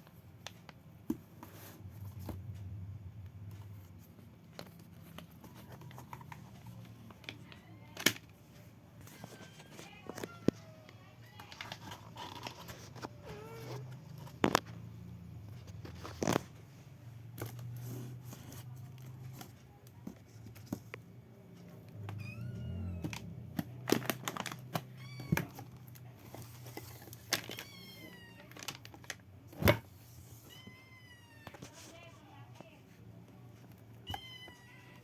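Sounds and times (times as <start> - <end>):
cat meowing: 34.0 - 35.0.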